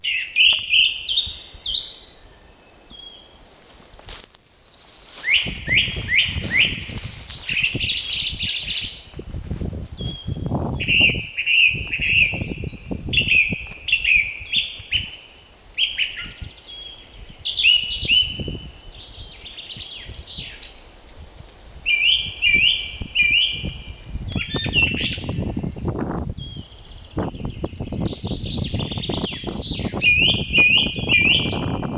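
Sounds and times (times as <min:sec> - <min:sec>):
songbirds chirping: 0:00.0 - 0:31.9
wind gusts rumbling: 0:05.2 - 0:31.9.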